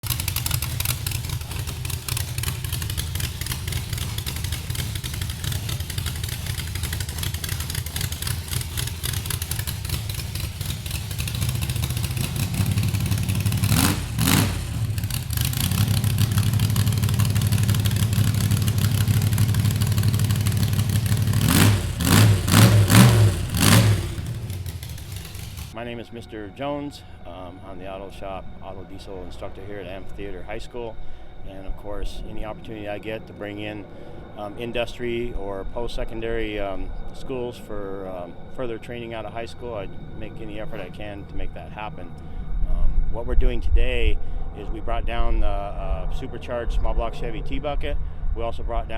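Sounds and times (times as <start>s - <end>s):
vehicle engine idling and revving: 0.0s - 25.8s.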